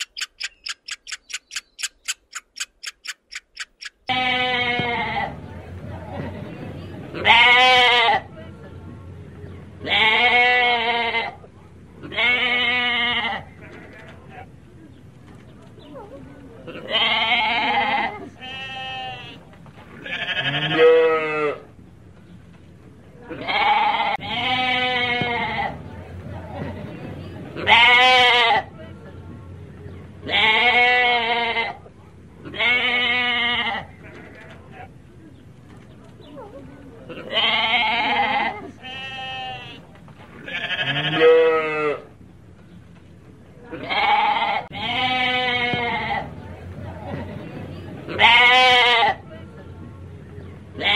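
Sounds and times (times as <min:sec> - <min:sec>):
sheep bleating: 0:04.1 - 0:05.3, 0:16.8 - 0:19.4, 0:20.0 - 0:21.6, 0:23.3 - 0:25.7, 0:27.6 - 0:28.6, 0:37.2 - 0:39.8, 0:40.4 - 0:42.0, 0:43.7 - 0:46.3, 0:48.1 - 0:49.2.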